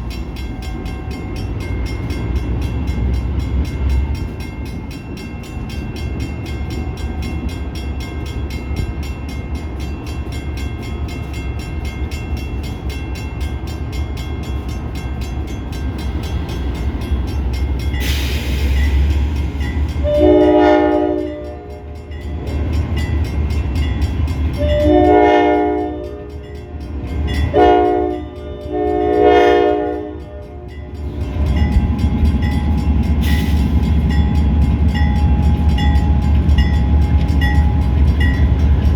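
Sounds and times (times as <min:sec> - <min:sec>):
locomotive rumbling past: 0:00.0 - 0:38.9
locomotive air horn blasts: 0:20.0 - 0:21.9, 0:24.6 - 0:26.4, 0:27.5 - 0:30.8.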